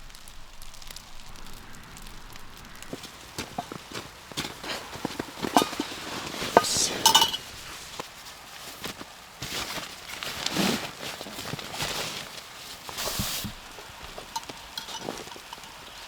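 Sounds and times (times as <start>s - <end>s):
hard objects clinking and knocking: 2.9s - 8.0s, 14.1s - 16.0s.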